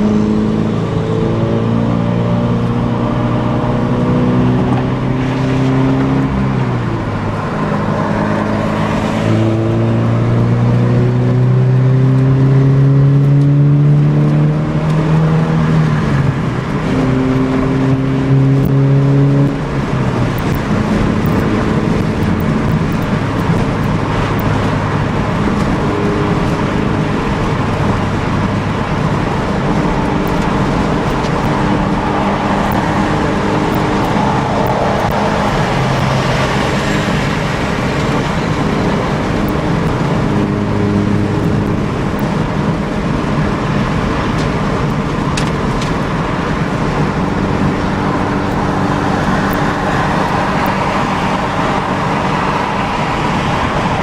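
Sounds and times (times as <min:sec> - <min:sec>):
car exhaust note cruising: 0:00.0 - 0:54.0
road and wind noise: 0:00.0 - 0:54.0.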